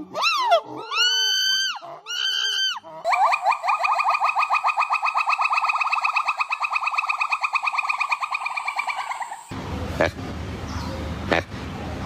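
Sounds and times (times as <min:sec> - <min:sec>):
animal call: 0:00.0 - 0:09.5.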